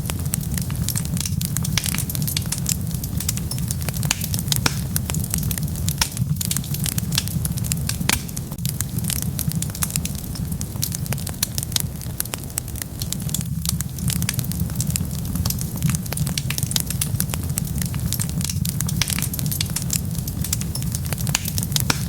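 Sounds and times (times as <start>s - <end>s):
fire crackling and popping: 0.0s - 22.0s
fire rumbling: 0.0s - 22.0s.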